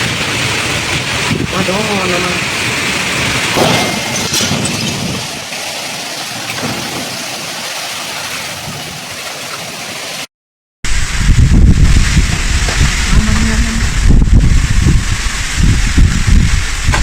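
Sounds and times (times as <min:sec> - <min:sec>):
heavy rain pouring: 0:00.0 - 0:10.3, 0:10.9 - 0:17.0.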